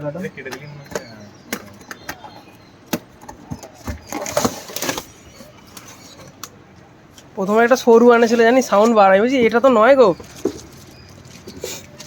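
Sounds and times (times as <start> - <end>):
cardboard scraping rustle: 3.8 - 6.3.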